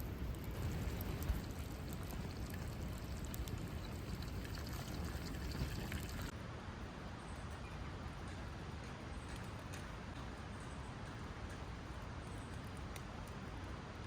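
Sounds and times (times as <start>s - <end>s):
water pouring and splashing: 0.0s - 6.3s.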